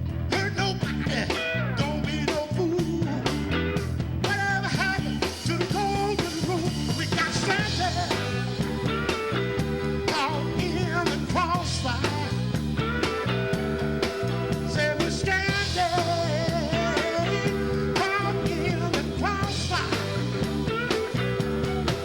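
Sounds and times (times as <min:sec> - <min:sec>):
bass: 0:00.0 - 0:22.0
drums: 0:00.0 - 0:22.0
guitar: 0:00.0 - 0:22.0
person singing: 0:00.3 - 0:03.5, 0:04.2 - 0:09.2, 0:10.0 - 0:12.4, 0:14.6 - 0:20.9.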